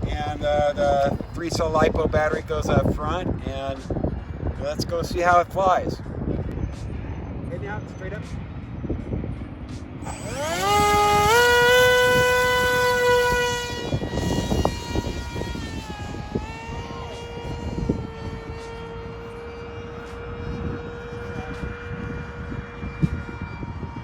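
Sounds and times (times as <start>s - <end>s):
electric motor propeller whine: 8.6s - 24.0s.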